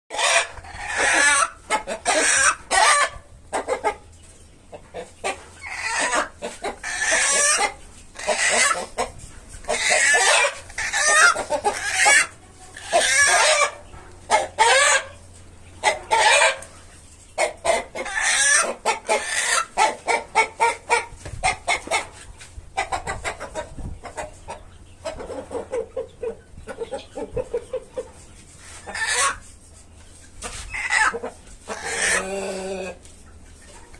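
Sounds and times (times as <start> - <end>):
chickens clucking and squawking: 0.1 - 33.9.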